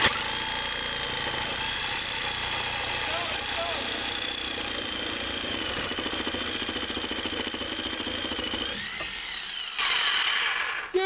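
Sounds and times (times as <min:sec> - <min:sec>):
reciprocating saw cutting metal pipe: 0:00.0 - 0:11.0.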